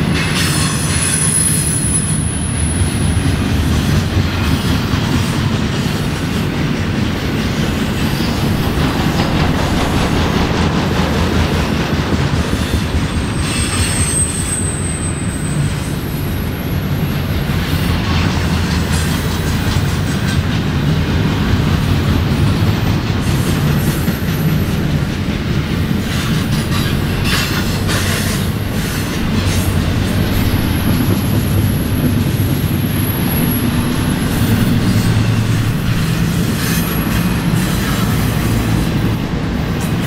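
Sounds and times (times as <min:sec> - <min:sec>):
freight train rolling past: 0:00.0 - 0:40.0
high wheel squeal: 0:00.3 - 0:03.2, 0:12.5 - 0:16.6, 0:26.0 - 0:39.0.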